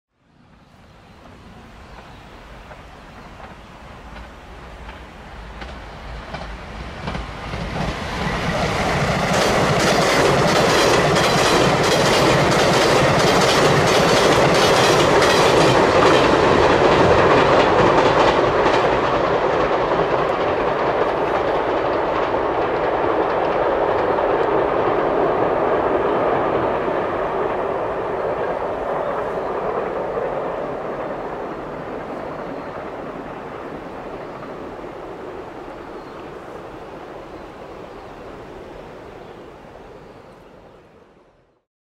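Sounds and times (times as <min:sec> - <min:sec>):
train rumble on bridge: 0:00.3 - 0:41.0
wheels clacking over rail joints: 0:01.2 - 0:33.1.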